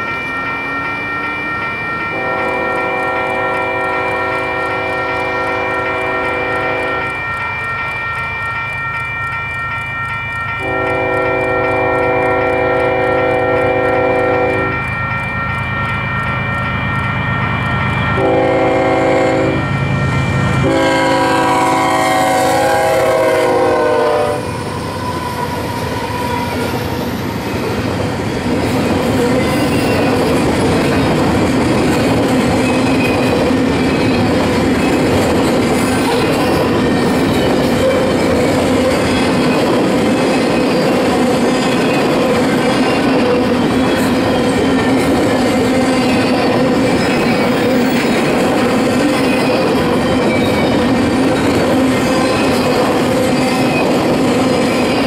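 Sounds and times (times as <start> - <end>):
train rumbling past: 0.0 - 55.0
locomotive horn: 2.1 - 7.1, 10.6 - 14.7, 18.2 - 19.6, 20.6 - 24.5.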